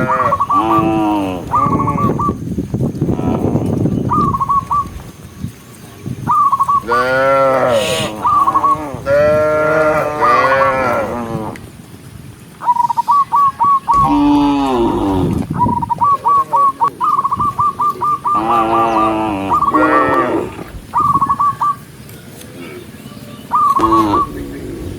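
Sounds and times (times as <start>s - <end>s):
cattle mooing: 6.9s - 11.6s, 14.0s - 15.4s, 18.4s - 20.6s, 23.8s - 24.4s
bird calling short notes: 23.6s - 24.6s.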